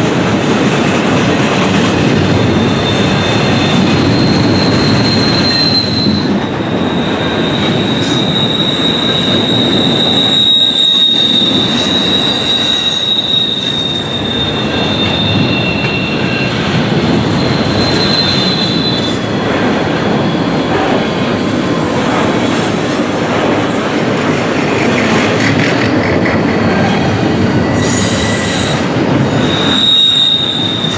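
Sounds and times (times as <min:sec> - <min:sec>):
train wheels rumbling on rail: 0:00.0 - 0:30.9
high-pitched wheel squeal: 0:02.5 - 0:19.4, 0:27.7 - 0:30.9.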